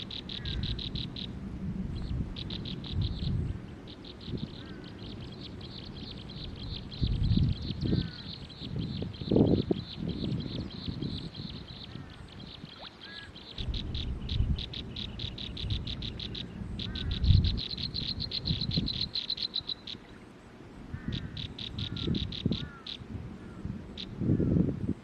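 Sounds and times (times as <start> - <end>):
birds trilling: 0.0 - 1.4, 2.0 - 20.3, 21.0 - 24.6
low rumbling noise: 0.0 - 12.0, 13.6 - 19.1.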